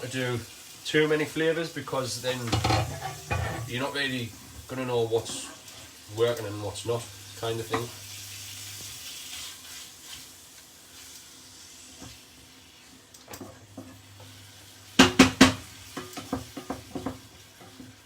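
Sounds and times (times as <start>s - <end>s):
meat sizzling in a pan: 0.0s - 18.0s
utensil knocking against pan: 2.5s - 3.7s, 15.0s - 17.2s.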